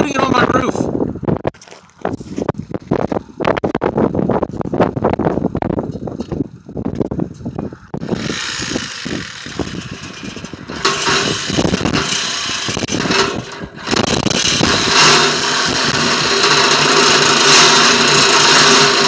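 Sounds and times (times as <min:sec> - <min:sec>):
reciprocating saw cutting metal: 0:08.0 - 0:19.0.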